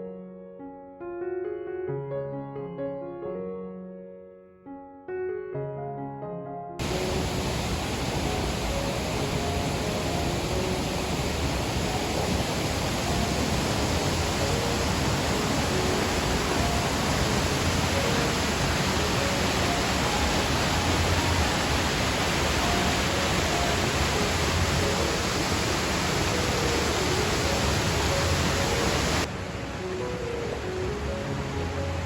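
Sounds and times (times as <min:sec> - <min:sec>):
faint music: 0:06.8 - 0:32.0
waterfall rushing: 0:06.8 - 0:32.0.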